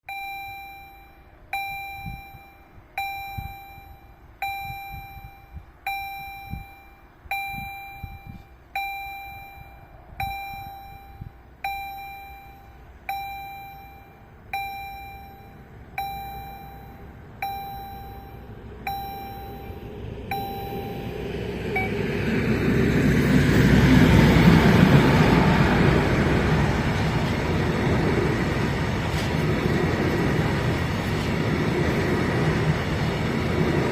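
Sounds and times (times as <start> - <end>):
level-crossing warning bell: 0.0 - 33.9
train passing rumble: 16.7 - 33.9.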